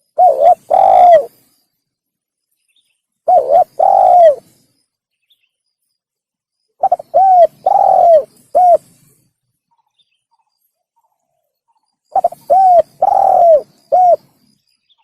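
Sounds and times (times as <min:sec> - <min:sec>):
dove cooing: 0:00.0 - 0:01.4, 0:03.3 - 0:04.5, 0:06.8 - 0:08.9, 0:12.1 - 0:14.4.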